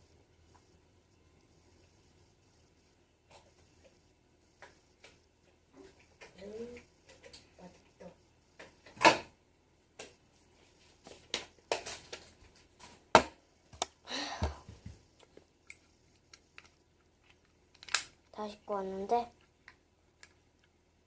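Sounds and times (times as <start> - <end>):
small objects clicking and knocking: 15.2 - 18.2.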